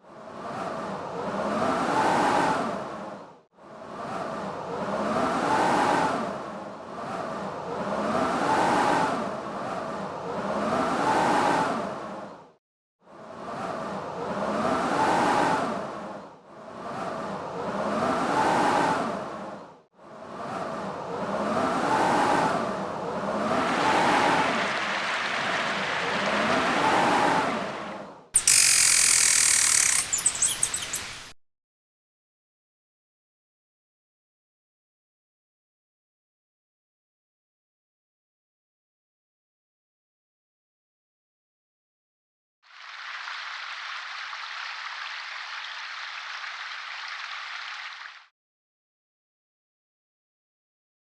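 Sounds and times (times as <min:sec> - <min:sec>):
howling wind gusts: 0:13.1 - 0:28.3.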